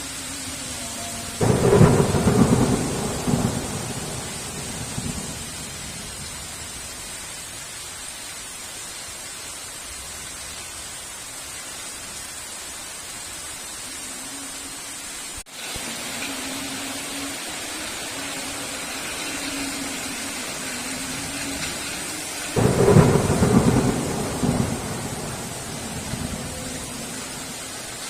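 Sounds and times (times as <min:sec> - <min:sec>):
heavy rain: 0:00.0 - 0:28.0
thunderclap rumbling: 0:01.4 - 0:06.6, 0:20.5 - 0:28.0.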